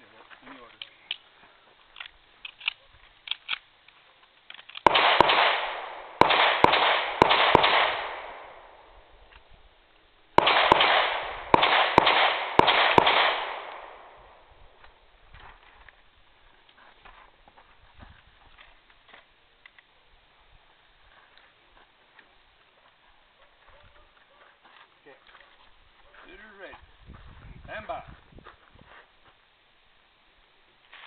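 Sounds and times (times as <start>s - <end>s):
pistol shots with echo: 4.8s - 9.1s, 10.4s - 14.8s.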